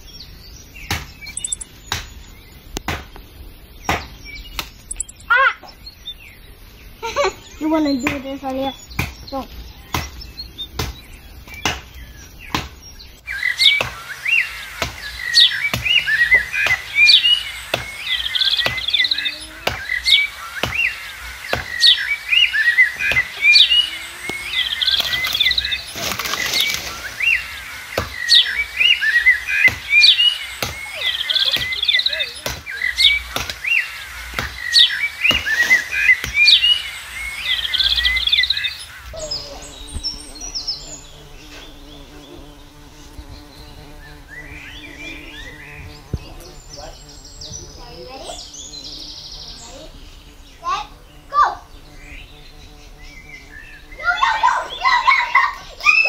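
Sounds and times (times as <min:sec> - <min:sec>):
songbirds chirping: 0:00.0 - 0:56.0
sharp repeating click: 0:01.3 - 0:01.7, 0:04.8 - 0:05.3.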